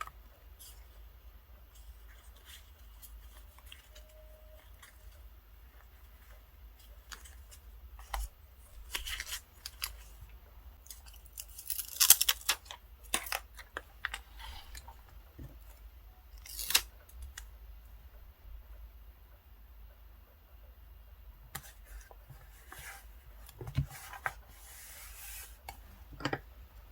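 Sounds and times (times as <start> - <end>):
paper being handled: 1.7 - 10.2.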